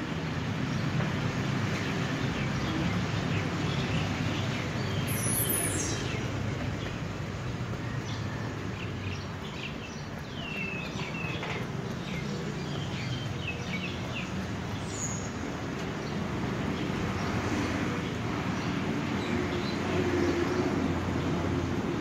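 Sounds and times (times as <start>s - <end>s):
small birds chirping: 8.8s - 17.4s.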